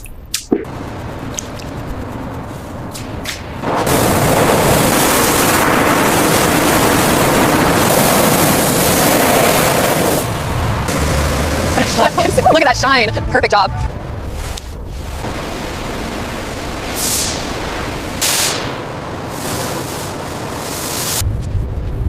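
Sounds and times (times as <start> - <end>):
pressure washer spraying: 16.8 - 21.2.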